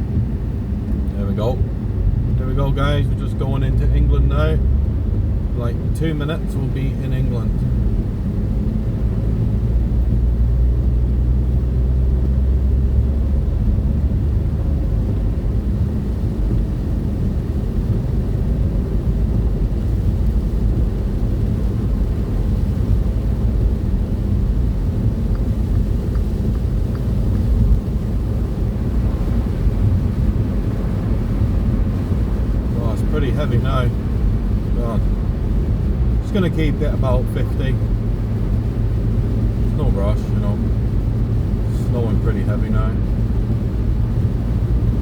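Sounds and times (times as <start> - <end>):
car engine and road noise: 0.0 - 45.0.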